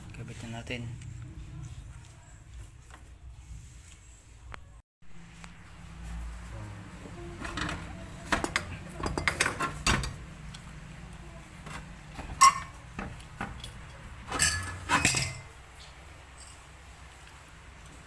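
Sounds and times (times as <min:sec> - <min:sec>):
metal tools clinking and tapping: 0:07.5 - 0:10.2, 0:11.6 - 0:16.8.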